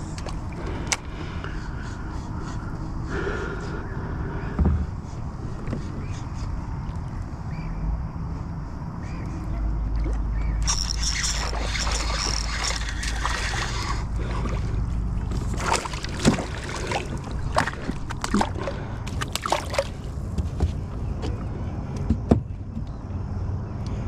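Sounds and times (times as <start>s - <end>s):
knocks and clicks against boat: 0.0s - 1.1s, 5.6s - 6.1s, 15.2s - 23.0s
steady low rumble: 0.0s - 19.3s
water sloshing against boat hull: 9.8s - 21.4s.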